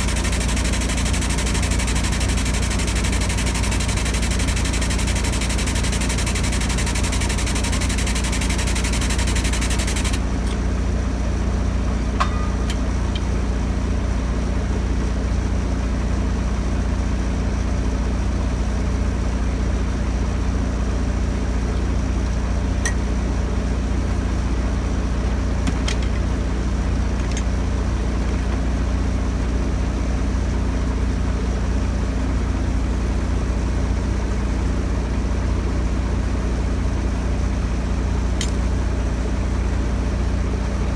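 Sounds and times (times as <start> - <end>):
diesel engine idling: 0.0 - 10.4.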